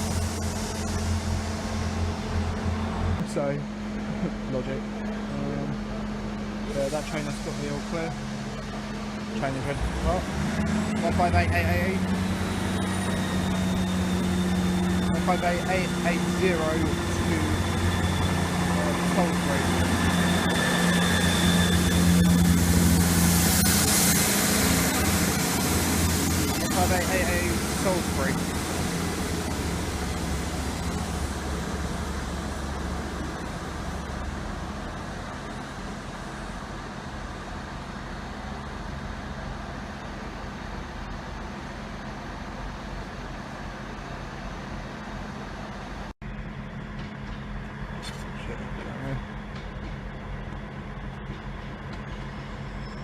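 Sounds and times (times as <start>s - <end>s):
train diesel engines running: 0.0s - 53.0s
thin high whine: 6.6s - 36.6s.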